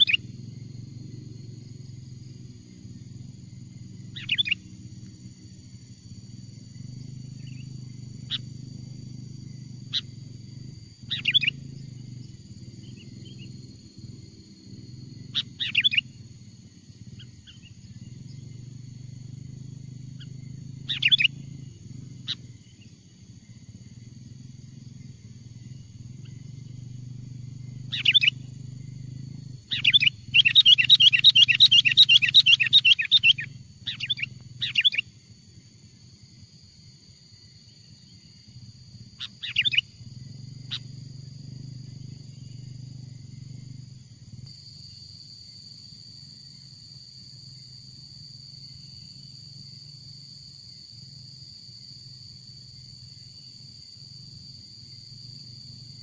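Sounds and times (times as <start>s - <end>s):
bird calling and chattering: 0.0s - 0.4s, 4.0s - 4.8s, 7.3s - 8.6s, 9.8s - 16.2s, 20.1s - 22.9s, 27.5s - 35.1s, 39.2s - 42.6s.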